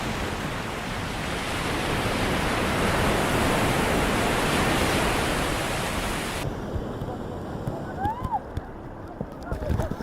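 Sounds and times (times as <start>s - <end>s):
ocean surf washing ashore: 0.0s - 10.0s.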